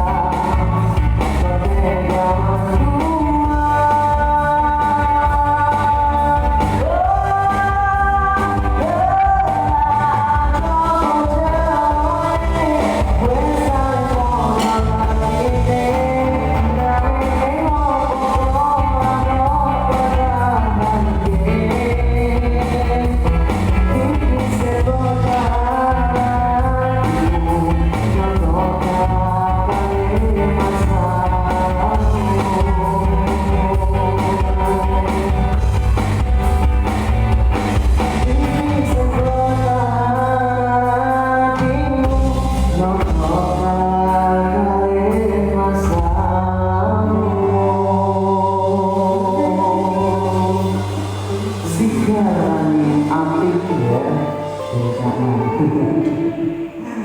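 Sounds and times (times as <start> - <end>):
live pop-rock band: 0.0 - 57.0
person singing: 0.0 - 57.0.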